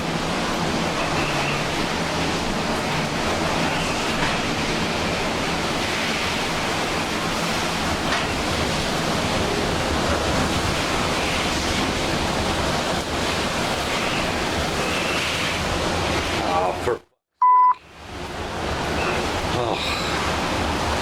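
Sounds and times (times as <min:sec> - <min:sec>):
hurricane wind and rain: 0:00.0 - 0:17.0, 0:17.8 - 0:21.0.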